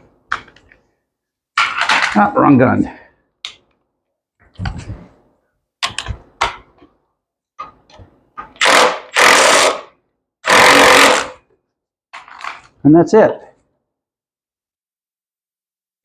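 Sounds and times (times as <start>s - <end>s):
impact wrench hammering: 10.5s - 11.4s.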